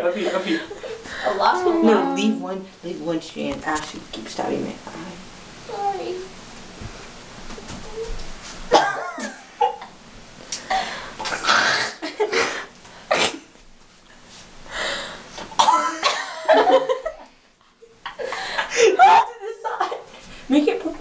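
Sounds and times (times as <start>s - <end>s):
people coughing: 8.7s - 9.9s, 10.7s - 13.5s, 15.6s - 16.5s
people laughing: 16.1s - 17.3s.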